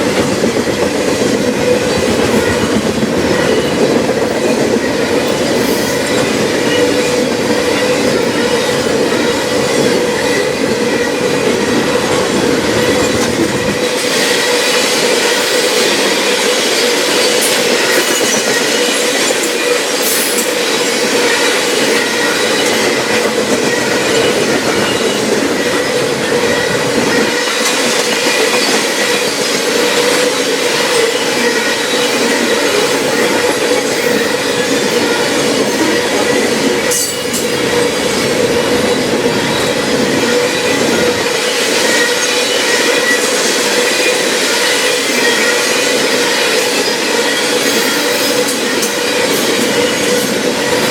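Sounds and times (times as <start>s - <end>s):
clickety-clack of wheels on rails: 0.0s - 50.9s
train wheels squealing: 0.0s - 50.9s.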